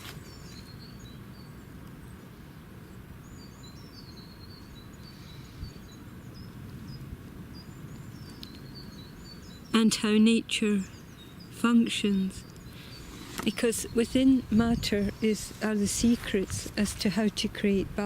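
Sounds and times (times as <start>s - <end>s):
small birds chirping: 0.0s - 18.0s
low outdoor rumble: 5.3s - 18.0s.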